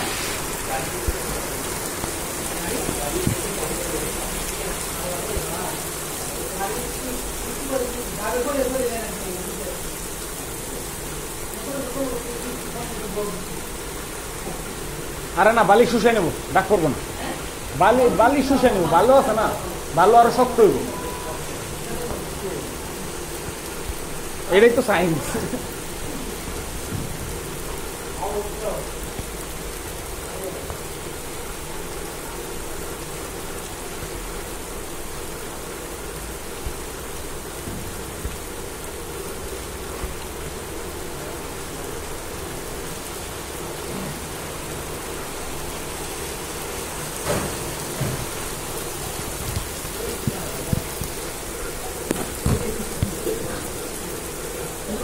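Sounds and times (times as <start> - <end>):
rain on a hard surface: 0.0 - 55.0
loud taps: 52.0 - 53.4.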